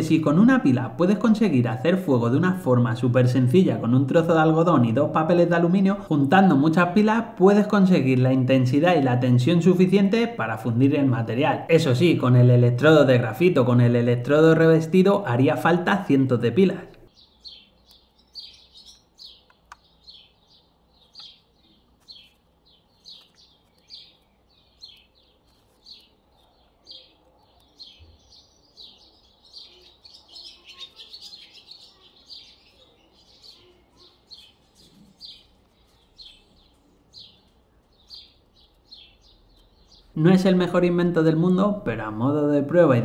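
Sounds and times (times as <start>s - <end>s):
small bird chirping: 16.9s - 40.4s.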